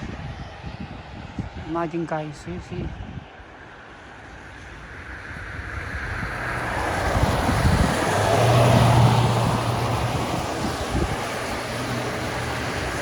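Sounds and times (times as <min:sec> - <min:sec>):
low engine hum: 0:02.4 - 0:13.0
tyres hissing through slush: 0:06.4 - 0:13.0.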